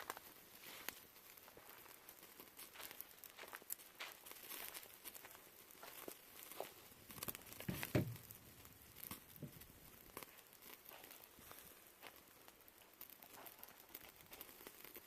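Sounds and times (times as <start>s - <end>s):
fire crackling and popping: 0.0s - 15.0s
dull knock: 7.7s - 8.2s.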